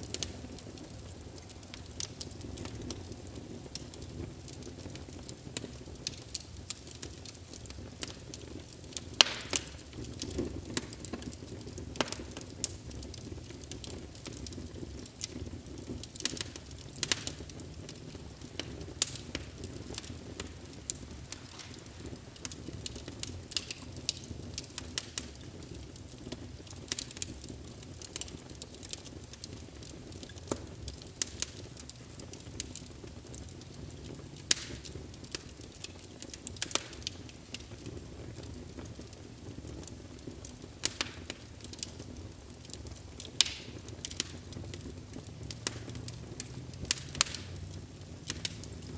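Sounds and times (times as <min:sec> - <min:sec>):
wood fire crackling in fireplace: 0:00.0 - 0:48.9.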